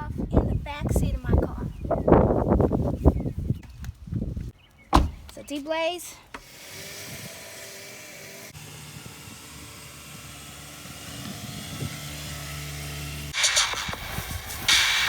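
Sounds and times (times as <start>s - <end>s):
machine running with rushing hiss: 13.3s - 15.0s.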